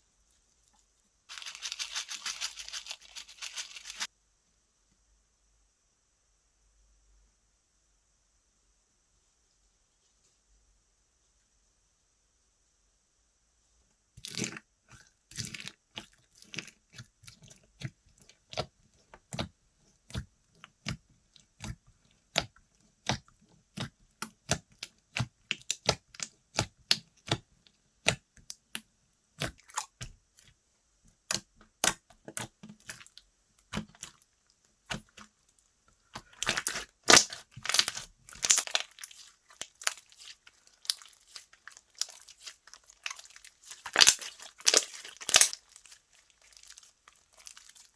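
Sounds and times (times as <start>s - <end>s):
slime crackling: 1.3s - 4.1s, 31.2s - 47.9s.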